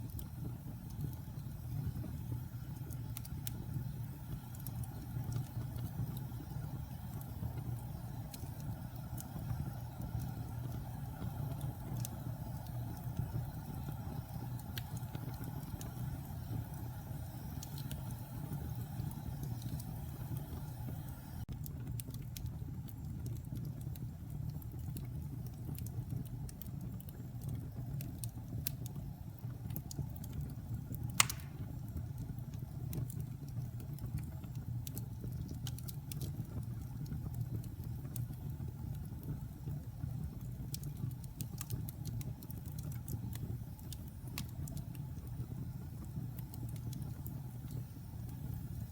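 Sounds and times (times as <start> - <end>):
wood fire crackling: 0.0 - 48.9
sharp pop of fire: 31.1 - 31.9.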